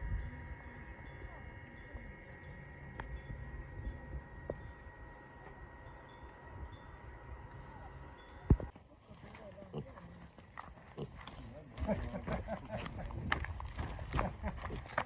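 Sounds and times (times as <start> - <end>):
faint wind chimes tinkling: 0.0 - 8.7
steady low rumble: 0.0 - 8.7.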